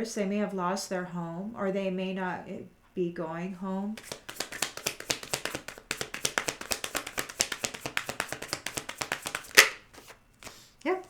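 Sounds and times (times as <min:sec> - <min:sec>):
cards being shuffled: 0:04.0 - 0:10.7
cards slapping: 0:04.0 - 0:10.7.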